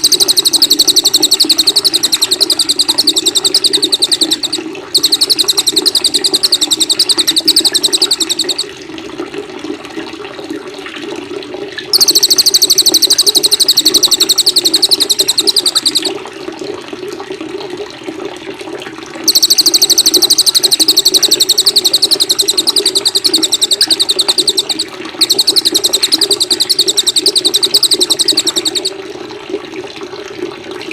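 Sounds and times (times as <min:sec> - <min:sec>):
songbird rapid trills: 0:00.0 - 0:08.7, 0:11.9 - 0:16.1, 0:19.3 - 0:28.9
running water: 0:00.0 - 0:08.8, 0:11.9 - 0:16.3, 0:19.3 - 0:29.6.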